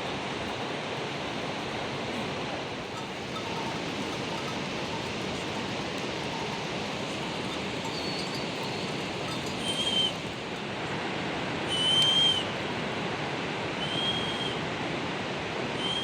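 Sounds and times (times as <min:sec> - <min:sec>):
bird whistling a clear note: 0:09.6 - 0:10.2.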